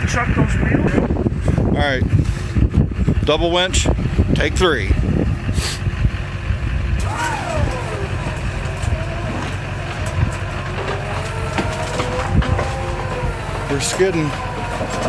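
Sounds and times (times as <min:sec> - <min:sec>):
vehicle engine running: 0:00.0 - 0:15.0
whining tone: 0:06.7 - 0:15.0
electric winches pulling under load: 0:06.9 - 0:15.0.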